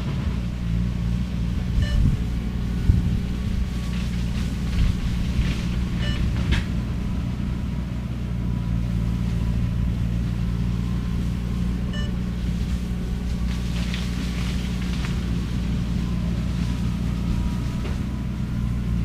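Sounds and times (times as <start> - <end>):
skid steer engine under load: 0.0 - 19.0
short high beeps: 1.8 - 2.2, 6.0 - 6.3, 11.9 - 12.2.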